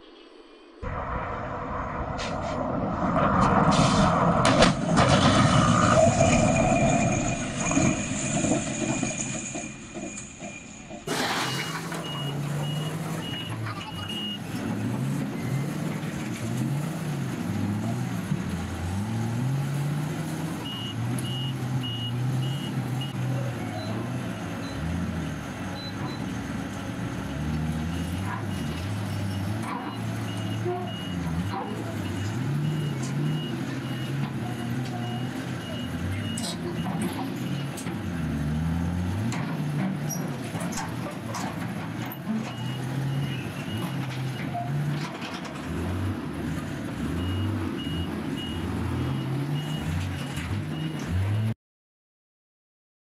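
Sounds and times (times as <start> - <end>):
heavy machine engine running: 0.9 - 51.5
heavy machinery rattling: 3.3 - 13.7.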